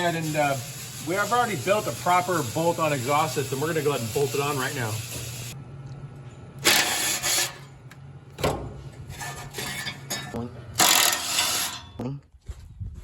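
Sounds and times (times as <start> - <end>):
harsh scraping tool noise: 0.0 - 5.6, 6.6 - 7.8, 8.9 - 12.0.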